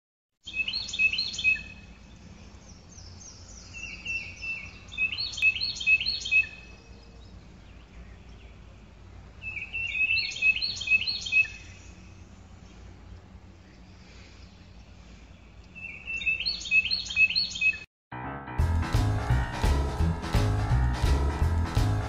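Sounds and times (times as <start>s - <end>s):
songbird chirping: 0.4s - 17.9s.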